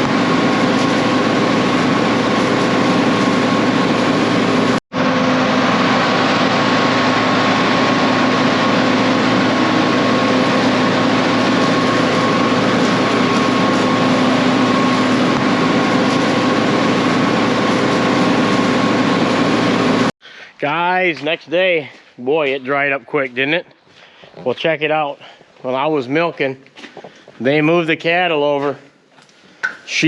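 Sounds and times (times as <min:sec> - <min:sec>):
machinery engine running steadily: 0:00.0 - 0:20.1.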